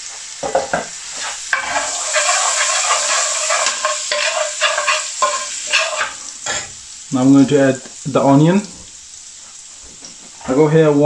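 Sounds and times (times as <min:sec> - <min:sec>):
spices sizzling in oil: 0:00.0 - 0:11.0
metal spoon scraping pan: 0:01.2 - 0:06.8.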